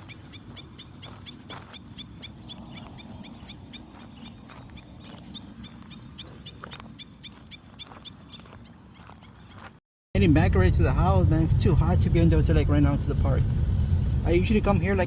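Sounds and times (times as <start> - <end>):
bird chirping: 0.0 - 9.8
wind rumble on microphone: 10.2 - 15.0.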